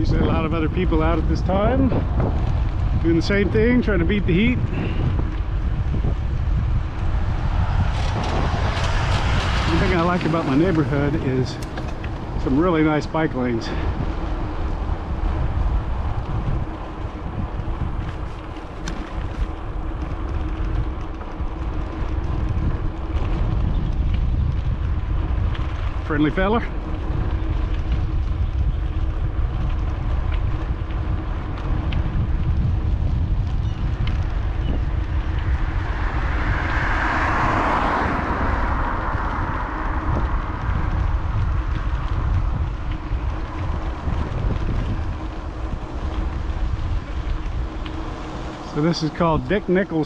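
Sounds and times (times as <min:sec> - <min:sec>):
wind buffeting microphone: 0:00.0 - 0:50.0
car passing: 0:00.6 - 0:50.0.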